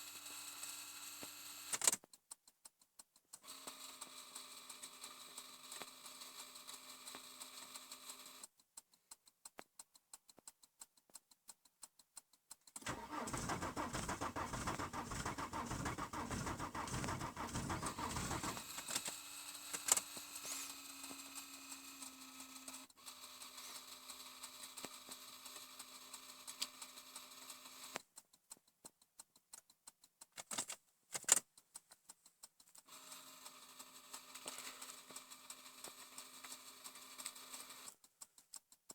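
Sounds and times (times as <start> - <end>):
sharp clicks: 1.7 - 3.4, 8.8 - 19.1, 27.9 - 32.9
starter motor cranking engine: 12.8 - 19.2.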